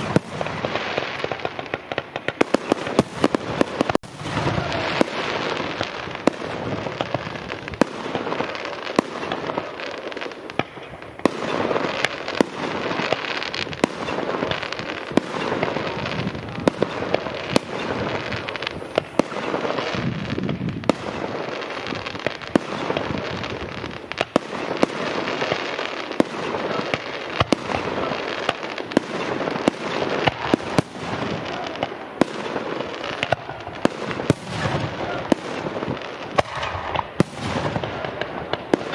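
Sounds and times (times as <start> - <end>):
fireworks banging: 0.0 - 38.9
fireworks crackling and hissing: 0.0 - 38.9.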